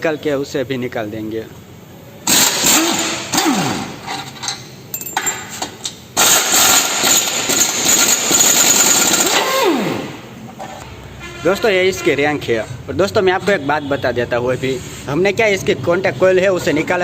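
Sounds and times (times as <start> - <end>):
power wrench whirring: 2.2 - 4.3, 6.2 - 10.2.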